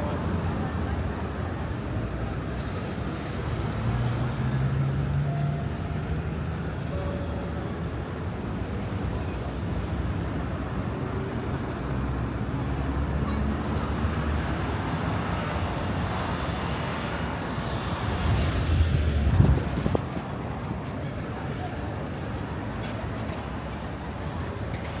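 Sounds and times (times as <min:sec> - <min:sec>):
passing vehicles rumbling: 0:08.4 - 0:25.0.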